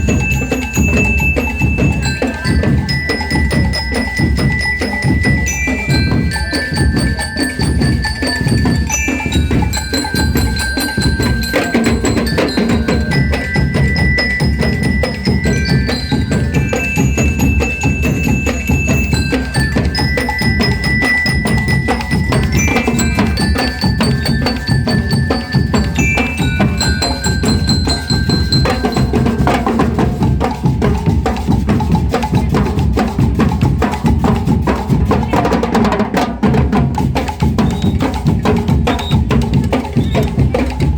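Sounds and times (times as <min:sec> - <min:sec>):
bell lyre melody: 0:00.0 - 0:30.8
rapid drumming: 0:00.0 - 0:40.9.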